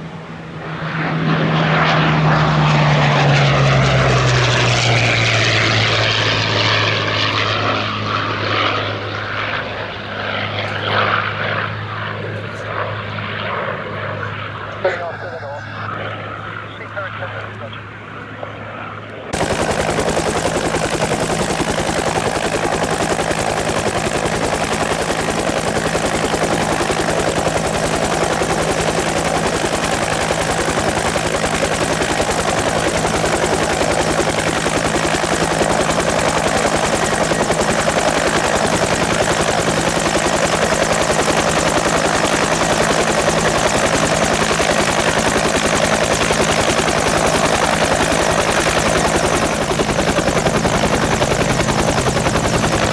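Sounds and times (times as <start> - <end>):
aircraft engine running: 0.0 - 52.9.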